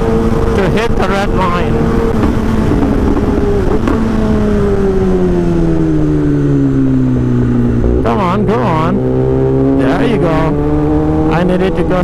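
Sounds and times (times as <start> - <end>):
wind rumble on microphone: 0.0 - 8.1
motorcycle engine revving: 0.0 - 12.0.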